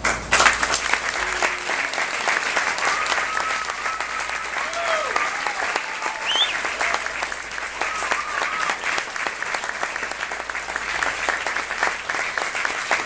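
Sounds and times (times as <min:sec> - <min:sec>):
audience clapping: 0:00.0 - 0:13.0
person whooping: 0:01.0 - 0:09.0.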